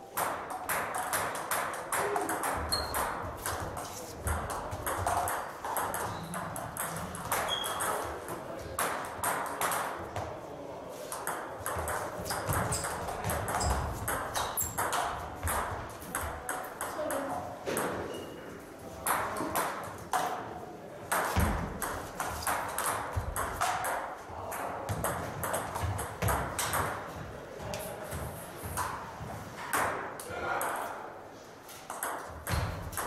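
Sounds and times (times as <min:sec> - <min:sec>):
table tennis balls clicking: 0:00.2 - 0:08.1, 0:11.1 - 0:18.0, 0:21.1 - 0:27.2, 0:31.8 - 0:33.0.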